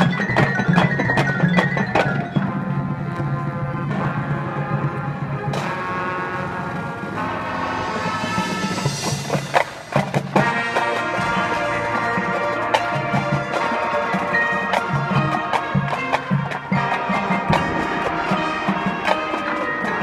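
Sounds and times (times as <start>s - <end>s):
marching band playing: 0.0s - 20.0s
sharp percussion strikes: 7.9s - 20.0s.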